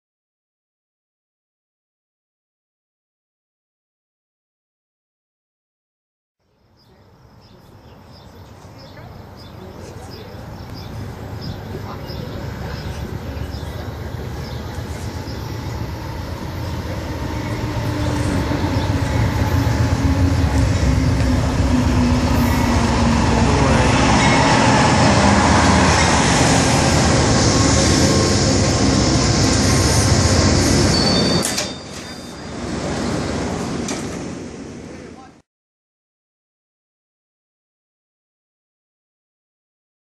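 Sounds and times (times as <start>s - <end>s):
locomotive engine rumble: 7.0s - 35.4s
train coaches rushing past: 7.4s - 35.4s
high brake squeal: 30.7s - 32.7s.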